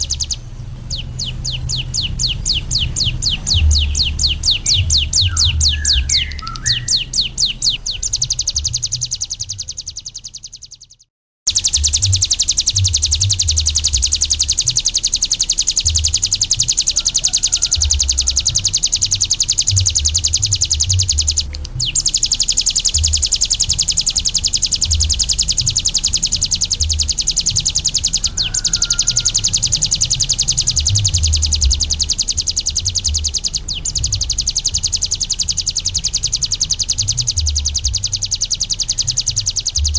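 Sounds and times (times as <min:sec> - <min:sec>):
low rumble: 0:00.0 - 0:10.0, 0:23.0 - 0:39.9
bird singing buzzy trill: 0:00.0 - 0:39.9.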